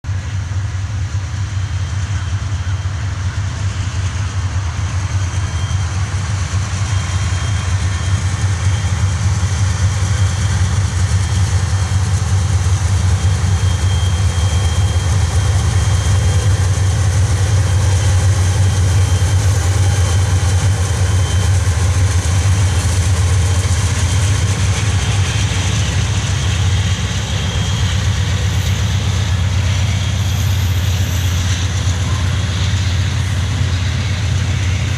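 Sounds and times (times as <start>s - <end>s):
locomotive engine rumble: 0.0s - 34.9s.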